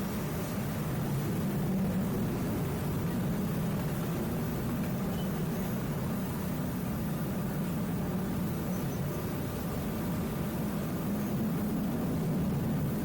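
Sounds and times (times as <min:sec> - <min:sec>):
faint hum: 0:00.0 - 0:13.0
steady low rumble: 0:00.0 - 0:13.0.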